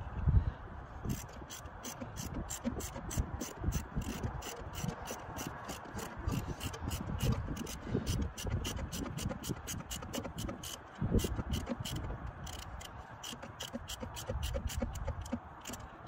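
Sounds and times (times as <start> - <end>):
ratchet wrench clicking: 1.1 - 16.0.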